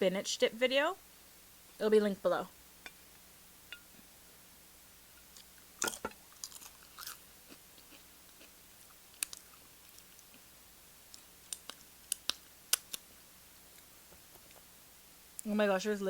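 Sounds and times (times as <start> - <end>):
person chewing tortilla chips: 5.3 - 13.1.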